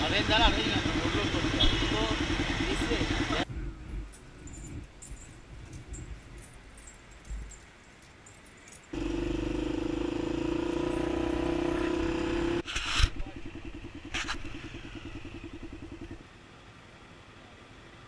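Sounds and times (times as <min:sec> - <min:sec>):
dirt bike engine running: 0:00.0 - 0:04.0, 0:08.9 - 0:16.2.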